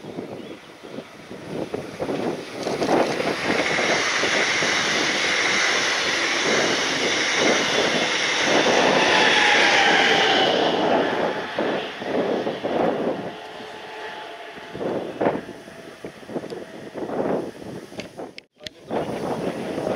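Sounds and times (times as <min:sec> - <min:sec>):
wind on microphone: 0:00.0 - 0:19.9
locomotive passing: 0:00.6 - 0:17.7
train wheels rushing on rail: 0:01.4 - 0:14.7.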